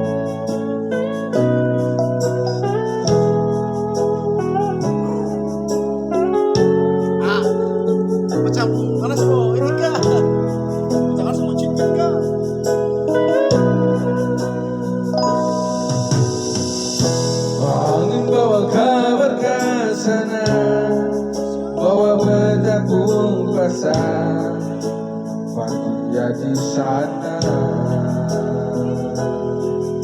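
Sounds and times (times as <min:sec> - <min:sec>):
guitar and keyboard: 0:00.0 - 0:30.0
wavering sung melody: 0:14.7 - 0:16.2.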